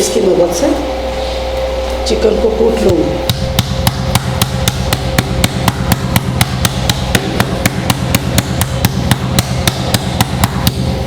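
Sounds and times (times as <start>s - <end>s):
meat mallet pounding chicken: 3.3s - 11.0s.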